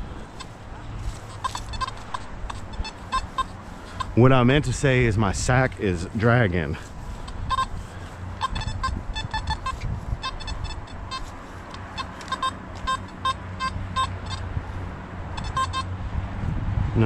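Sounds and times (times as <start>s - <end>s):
metal detector beeps: 0.3s - 4.8s, 7.2s - 14.5s, 15.4s - 15.9s.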